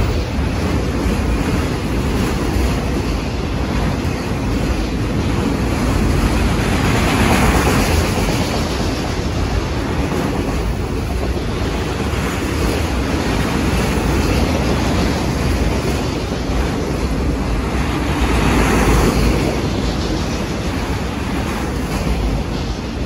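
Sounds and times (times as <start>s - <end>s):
freight cars rolling on rails: 0.0s - 23.0s.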